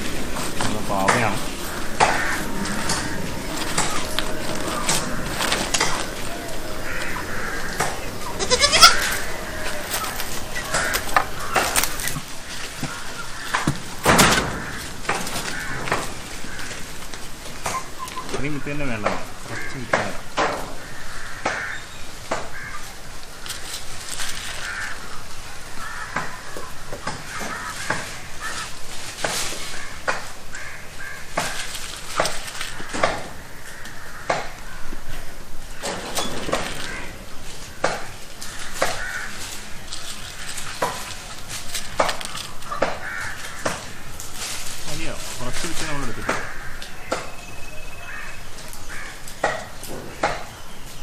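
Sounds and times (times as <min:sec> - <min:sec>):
hands rustling seeds and soil: 0:00.0 - 0:19.9, 0:22.6 - 0:35.8, 0:36.6 - 0:49.9
bird calling: 0:00.0 - 0:23.2, 0:29.7 - 0:51.0
crows cawing: 0:00.0 - 0:23.4, 0:24.2 - 0:50.6.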